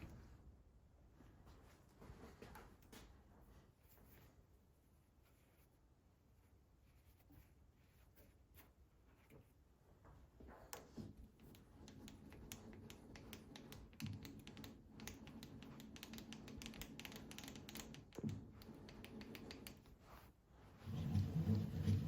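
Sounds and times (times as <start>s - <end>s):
light clicks and ticks: 10.7s - 20.0s.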